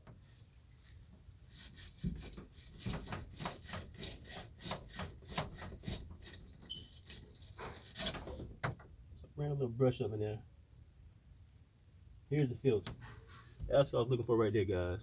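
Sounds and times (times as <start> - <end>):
wire brush scraping: 0.8 - 8.4.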